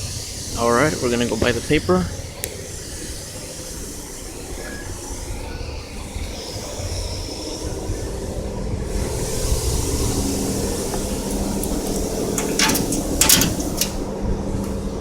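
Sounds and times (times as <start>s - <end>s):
car wash machinery humming: 0.0s - 15.0s.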